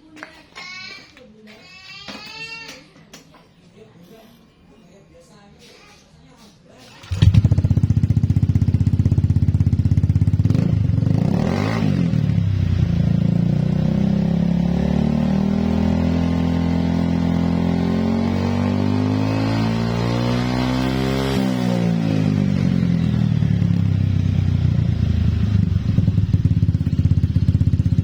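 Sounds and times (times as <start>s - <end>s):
scooter engine idling and revving: 6.9s - 28.0s.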